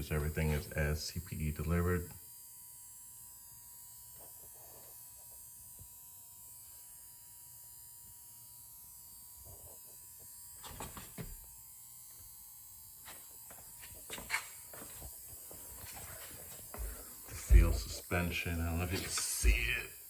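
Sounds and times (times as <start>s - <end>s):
faint electrical hum: 0.0s - 20.0s
thin high whine: 15.8s - 20.0s.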